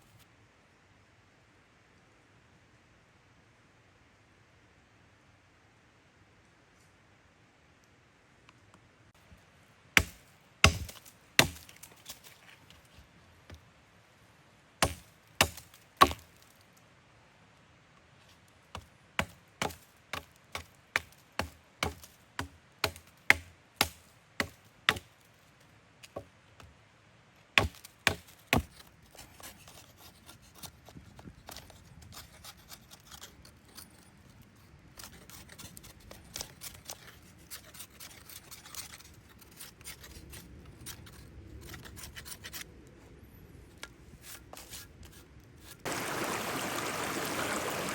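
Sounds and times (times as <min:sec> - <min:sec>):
blade chopping strikes: 0:10.0 - 0:11.8, 0:14.8 - 0:16.2
soft rustling and scraping: 0:10.9 - 0:13.7, 0:28.2 - 0:45.9.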